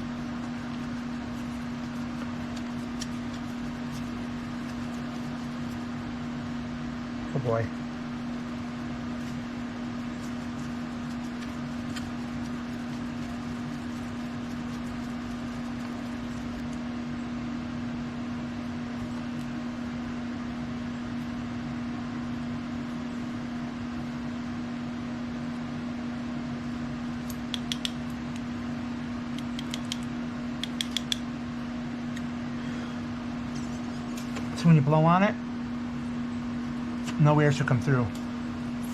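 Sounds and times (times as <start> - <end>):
fan humming: 0.0 - 38.9.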